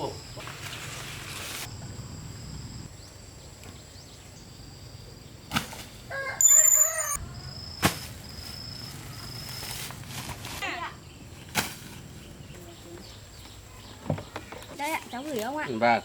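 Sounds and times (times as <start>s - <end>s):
high insect-like hum: 0.0s - 10.0s.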